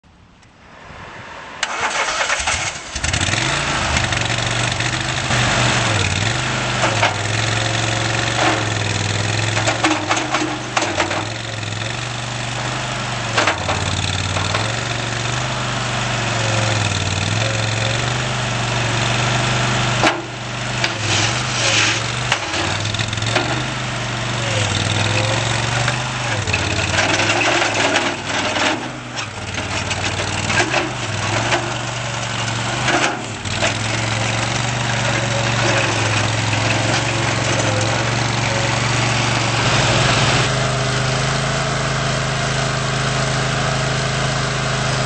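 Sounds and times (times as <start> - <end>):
loader engine running: 0.6 - 45.0
machine clanks and rattles: 6.8 - 12.0, 13.3 - 14.9, 20.0 - 23.9, 24.5 - 39.8.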